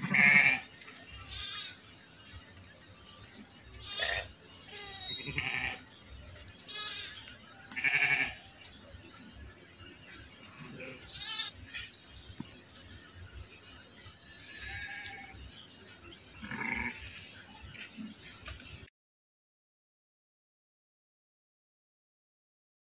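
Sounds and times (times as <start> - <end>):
sheep bleating: 0.0 - 0.7, 1.3 - 1.8, 3.8 - 5.8, 6.7 - 8.4, 10.6 - 11.6, 14.4 - 15.4, 16.4 - 17.1.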